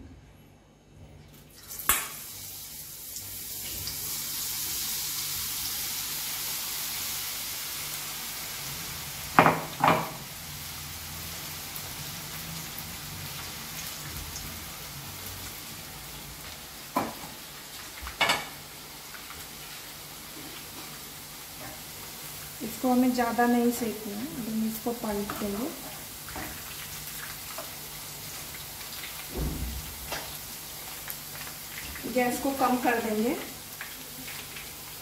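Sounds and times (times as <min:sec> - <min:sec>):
batter frying in hot oil: 0:01.3 - 0:35.0.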